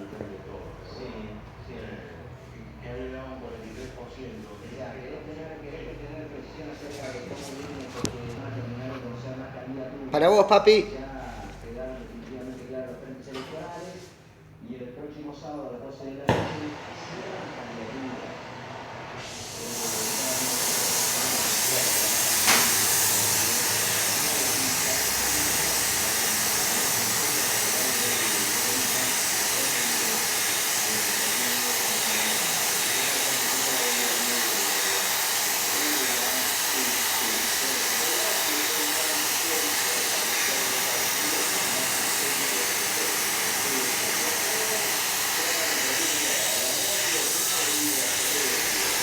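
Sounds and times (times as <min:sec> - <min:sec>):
loud rushing hiss: 0:16.3 - 0:49.0.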